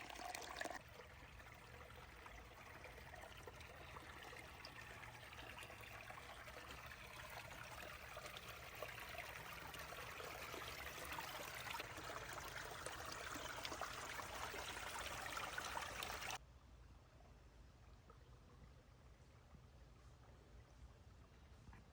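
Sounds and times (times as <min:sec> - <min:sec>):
creek water trickling: 0:00.0 - 0:16.4.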